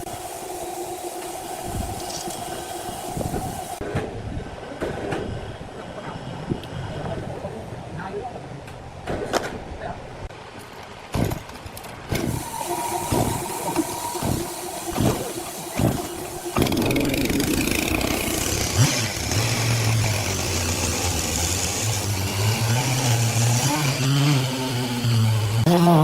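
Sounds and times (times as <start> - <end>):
engine-driven saw running: 0.0 - 3.8, 12.1 - 26.0
hiss: 0.0 - 3.8, 12.1 - 25.7.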